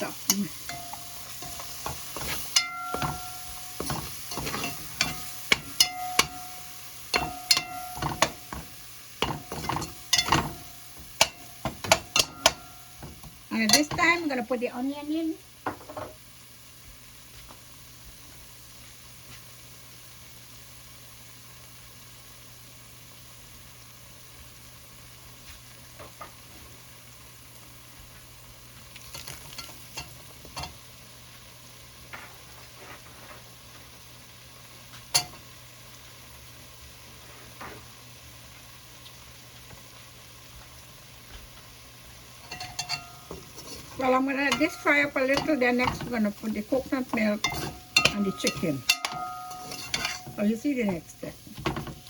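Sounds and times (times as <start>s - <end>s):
onion sizzling in a pot: 0.0s - 52.0s
utensil knocking against pot: 0.7s - 14.2s, 44.4s - 51.0s.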